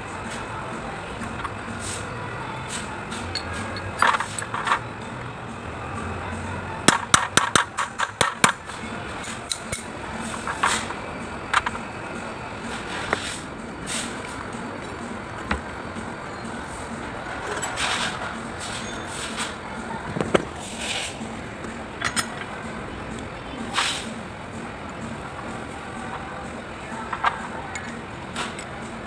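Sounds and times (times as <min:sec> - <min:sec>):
metal tools clinking: 0:02.8 - 0:04.8, 0:22.0 - 0:22.6, 0:27.0 - 0:28.7.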